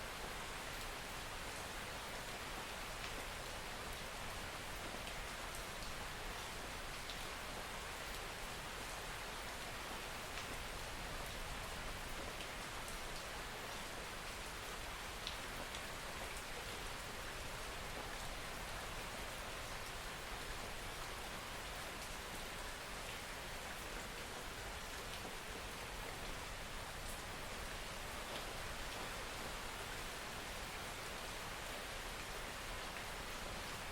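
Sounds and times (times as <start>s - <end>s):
soft rain falling: 0.0s - 33.9s.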